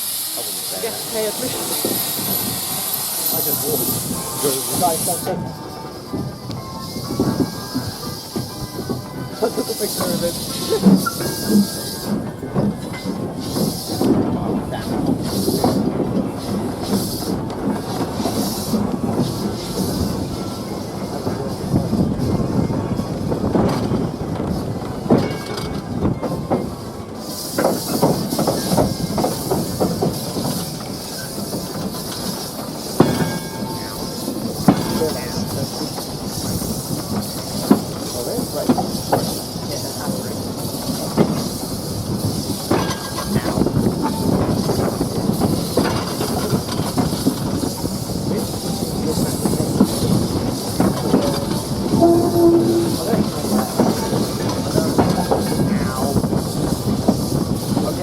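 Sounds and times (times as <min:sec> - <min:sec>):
steam locomotive hissing: 0:00.0 - 0:58.0
train wheels clattering: 0:00.0 - 0:58.0
short steady tone: 0:52.0 - 0:53.3.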